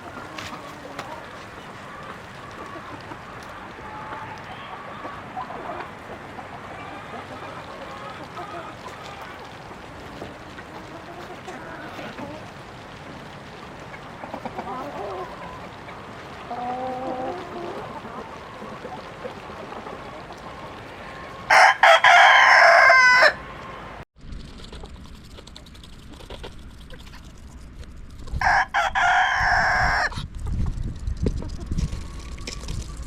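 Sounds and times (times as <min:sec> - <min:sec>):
faint chicken call: 0:14.3 - 0:24.0
rooster crowing: 0:20.4 - 0:24.0, 0:28.4 - 0:30.2.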